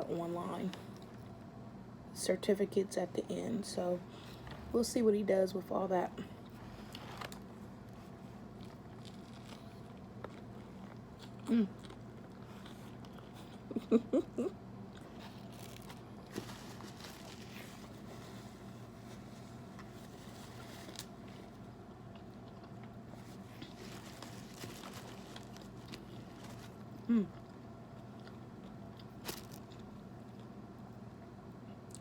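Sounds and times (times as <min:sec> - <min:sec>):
person chewing: 0:08.5 - 0:13.8, 0:14.8 - 0:16.9, 0:21.9 - 0:30.5.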